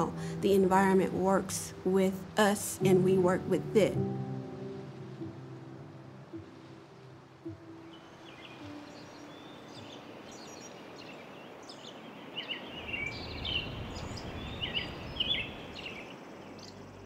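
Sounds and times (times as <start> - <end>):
outdoor background hiss: 0.0 - 17.0
small birds chirping: 7.3 - 17.0.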